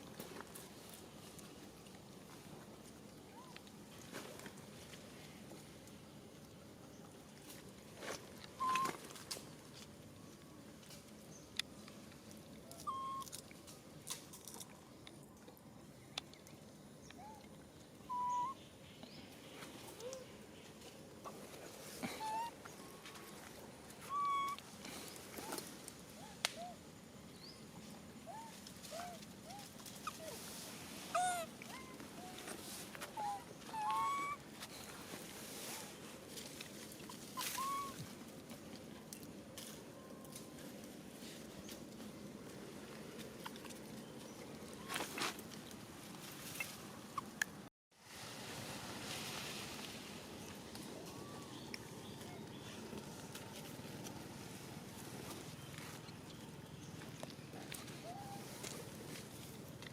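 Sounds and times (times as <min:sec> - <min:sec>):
outdoor background noise: 0:00.0 - 0:59.9
whistle-like animal calls: 0:08.6 - 0:09.0, 0:12.7 - 0:13.3, 0:18.0 - 0:18.6, 0:24.0 - 0:24.6, 0:33.2 - 0:34.4, 0:37.4 - 0:38.0.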